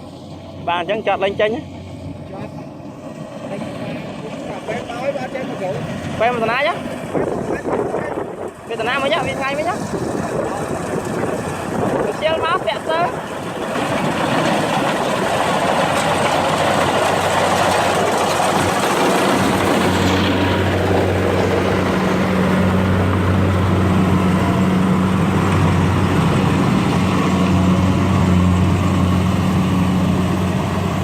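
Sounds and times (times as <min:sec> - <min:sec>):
heavy machine engine running: 0:00.0 - 0:31.0
rushing noise: 0:08.6 - 0:31.0.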